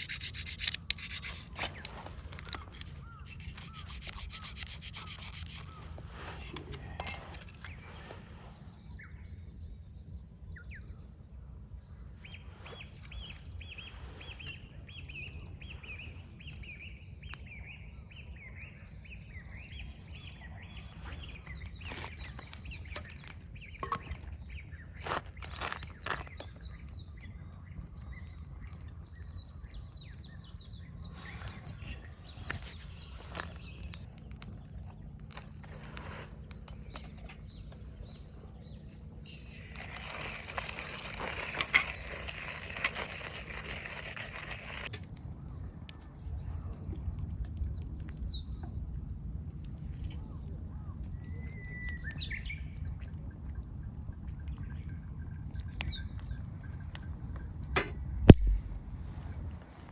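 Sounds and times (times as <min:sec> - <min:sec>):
birds chirping: 0:00.0 - 0:59.9
steady low rumble: 0:52.5 - 0:59.9.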